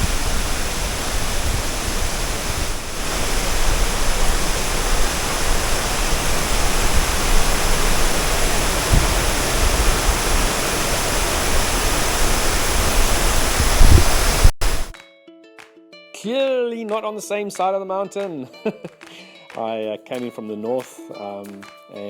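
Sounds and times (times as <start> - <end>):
waterfall rushing: 0.0 - 14.9
wind buffeting microphone: 0.0 - 14.9.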